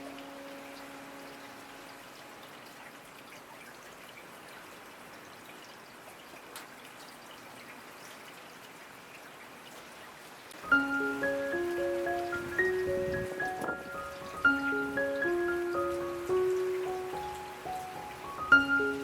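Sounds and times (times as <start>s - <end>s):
sustained music chord: 0.0s - 3.2s
rain falling: 0.0s - 19.0s
water drips: 0.0s - 19.0s.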